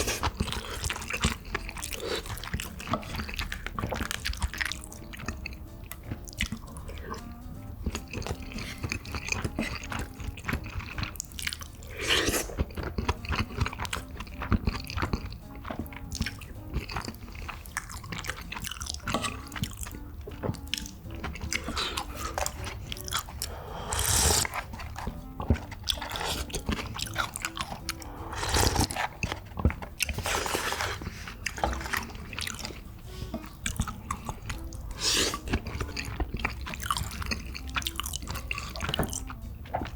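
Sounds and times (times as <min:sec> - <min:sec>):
chewing: 0:00.0 - 0:39.9
wet mouth clicks: 0:07.9 - 0:31.7.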